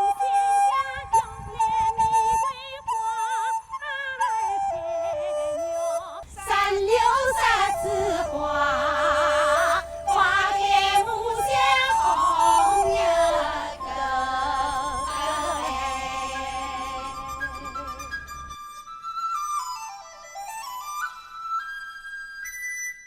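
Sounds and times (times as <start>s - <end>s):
high melody with vibrato: 7.4s - 18.8s
low bass layer: 11.4s - 18.6s.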